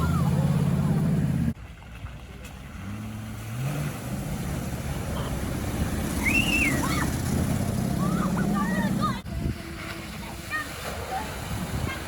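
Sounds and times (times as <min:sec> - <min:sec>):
off-road engine revving: 0:00.0 - 0:01.6, 0:02.6 - 0:09.2.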